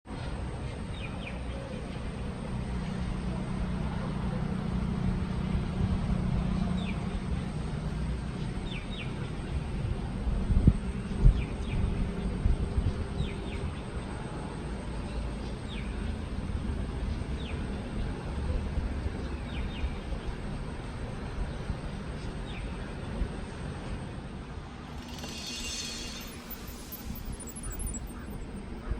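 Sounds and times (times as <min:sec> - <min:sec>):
bird chirping: 0:25.0 - 0:28.9.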